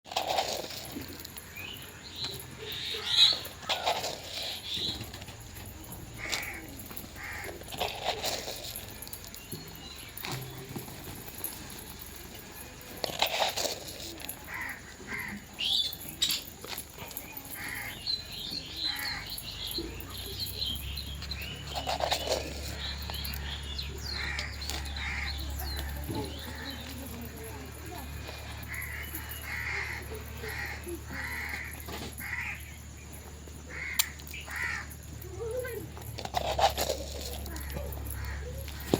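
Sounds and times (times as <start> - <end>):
birds calling: 0.2 - 38.9
crow cawing: 6.2 - 7.6, 14.5 - 15.4, 28.7 - 32.6, 33.7 - 35.0.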